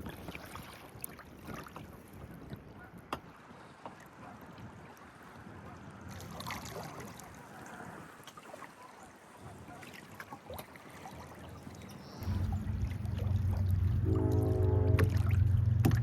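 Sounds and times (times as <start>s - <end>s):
water trickling and splashing: 0.0s - 16.0s
water dripping: 12.2s - 16.0s.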